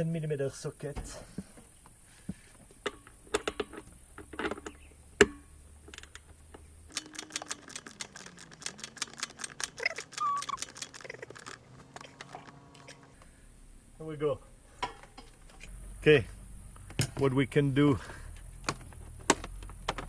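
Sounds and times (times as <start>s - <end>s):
ratchet wrench clicking: 6.9s - 13.0s.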